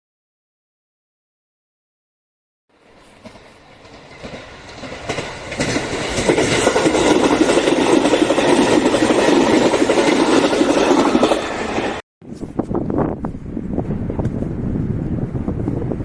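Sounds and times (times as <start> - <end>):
train wheels clattering over joints: 3.2 - 12.0.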